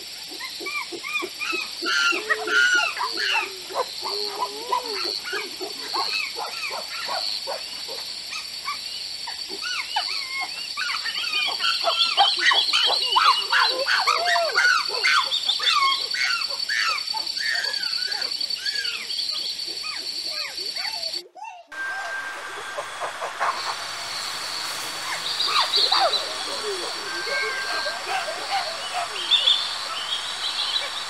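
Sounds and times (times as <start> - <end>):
animals yelping and chirping: 0.0 - 31.0
steady high-pitched tone: 21.1 - 31.0.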